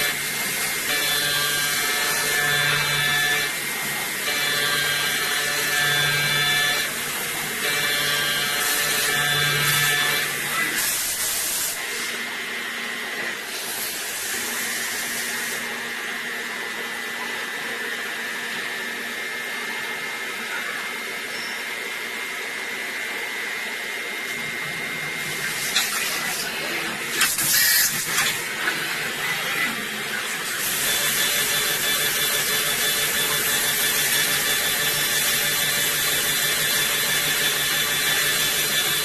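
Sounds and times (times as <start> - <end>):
milling machine hiss: 0.0 - 12.4, 25.2 - 39.0
high spindle whine: 14.2 - 39.0.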